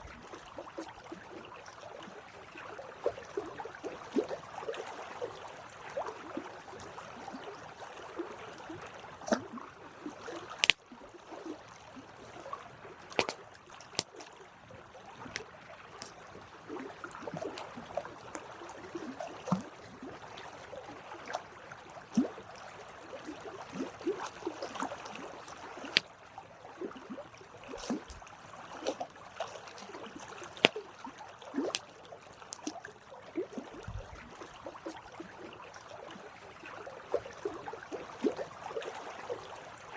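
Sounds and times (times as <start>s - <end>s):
campfire crackling and popping: 10.6s - 10.8s.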